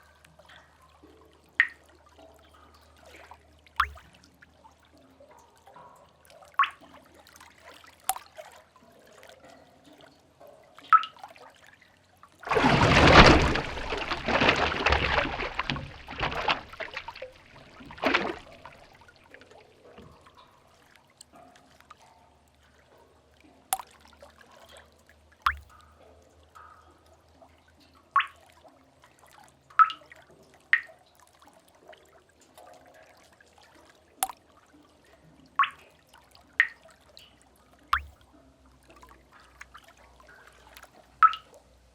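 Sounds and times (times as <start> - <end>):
water drops dripping into pool: 0.0 - 11.6, 12.4 - 22.6, 23.3 - 28.8, 29.7 - 32.8, 34.1 - 41.6
wave splashing and churning: 12.4 - 19.2.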